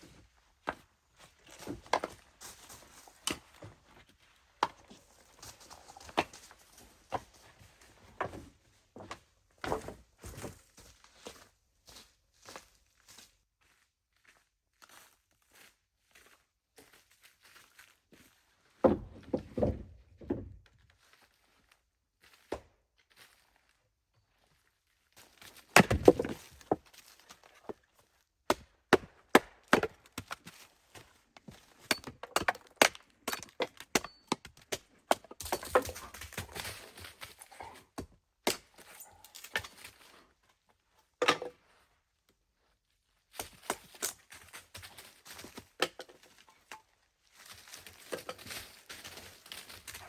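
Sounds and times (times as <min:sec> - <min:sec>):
wooden knocks and cracks: 0:18.8 - 0:20.6, 0:25.7 - 0:26.9.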